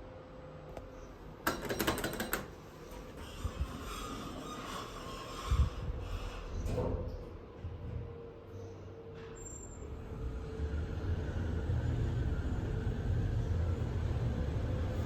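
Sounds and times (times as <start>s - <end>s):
lift car rumbling: 9.2s - 15.0s.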